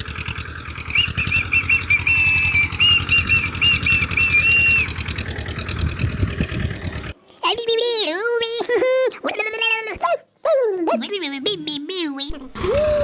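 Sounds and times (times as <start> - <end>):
toy tractor engine chugging: 0.0 - 7.2
high wavering whistle-like tone: 0.9 - 5.0.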